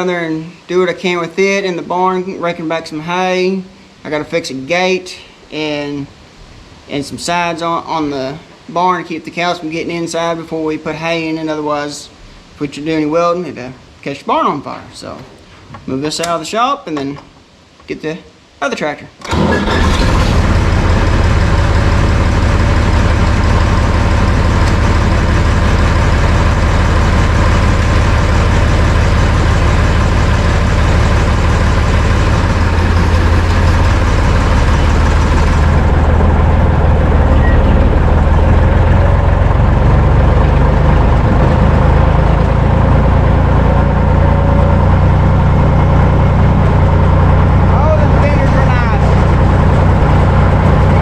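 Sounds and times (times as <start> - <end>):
tractor diesel engine running: 19.2 - 51.0.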